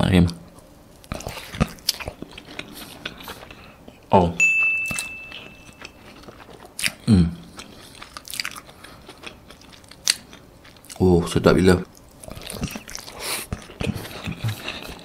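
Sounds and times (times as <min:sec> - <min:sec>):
chewing toast: 0:01.0 - 0:04.0, 0:05.7 - 0:11.1, 0:11.8 - 0:15.0.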